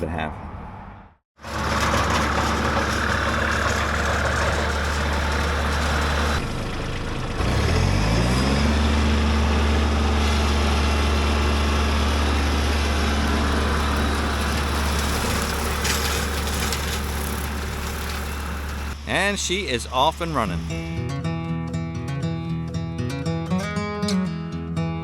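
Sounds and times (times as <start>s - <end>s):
tractor diesel engine revving: 1.4s - 21.4s.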